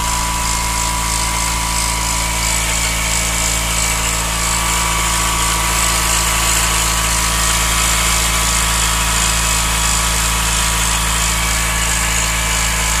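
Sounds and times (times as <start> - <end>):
high-pitched whine: 0.0 - 8.6
car engine running: 0.0 - 13.0.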